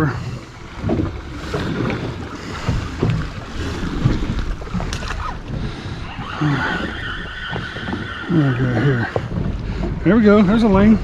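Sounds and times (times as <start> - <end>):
sea washing around boat: 0.0 - 11.0
wind buffeting microphone: 0.0 - 11.0
knocks on boat: 0.7 - 5.8.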